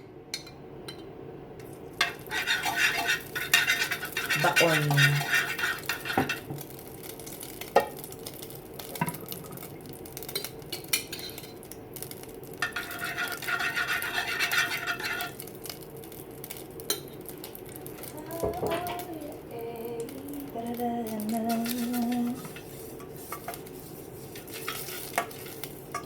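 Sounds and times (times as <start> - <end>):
eggs beaten in a dish: 2.0 - 6.6, 12.6 - 15.4.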